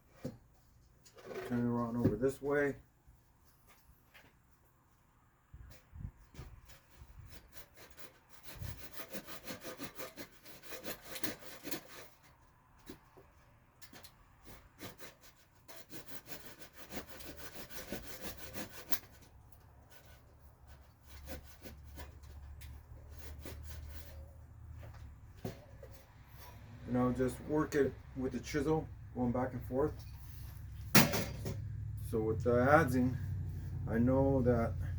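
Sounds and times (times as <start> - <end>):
carving tool scraping wood: 6.3 - 13.3, 13.9 - 28.8.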